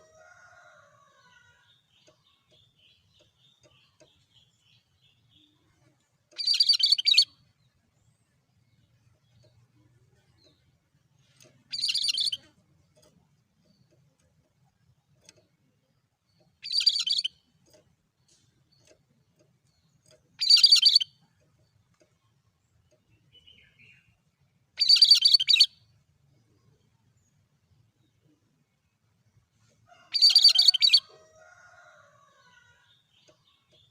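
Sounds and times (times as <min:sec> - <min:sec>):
songbird calling: 0:06.4 - 0:07.4, 0:11.7 - 0:12.6, 0:16.4 - 0:17.5, 0:20.4 - 0:21.1.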